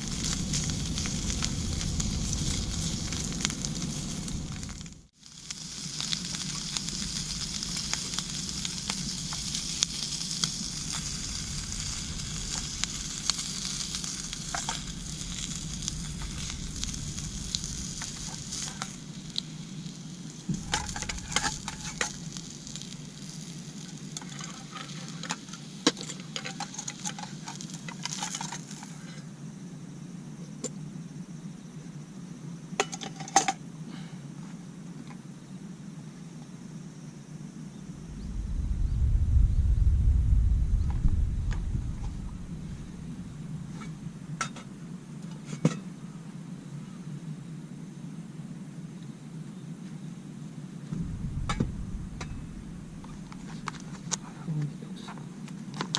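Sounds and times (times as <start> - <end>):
food sizzling in a pan: 0.0 - 29.0
low steady hum: 37.7 - 46.2, 50.6 - 55.1.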